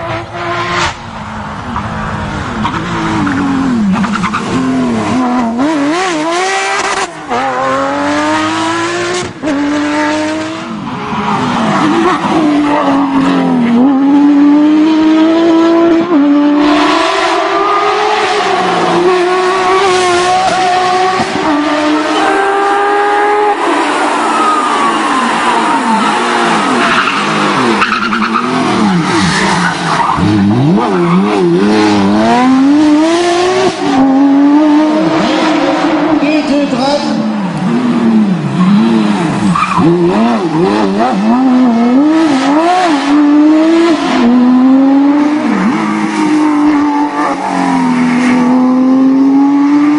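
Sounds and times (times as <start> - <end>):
rally car engine revving: 0.0 - 49.9
tyres skidding: 0.0 - 49.9.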